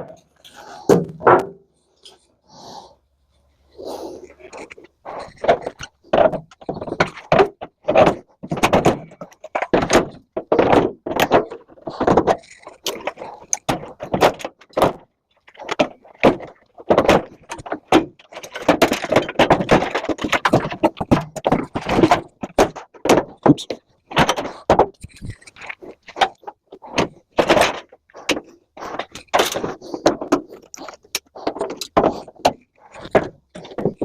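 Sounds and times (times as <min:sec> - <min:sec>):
sheet metal knocks and clanks: 0:00.9 - 0:01.6.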